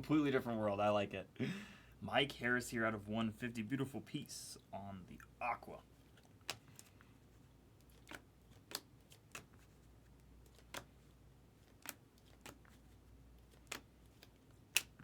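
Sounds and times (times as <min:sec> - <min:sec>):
trading cards clicking: 0:06.2 - 0:06.9, 0:07.8 - 0:09.7, 0:10.3 - 0:15.0.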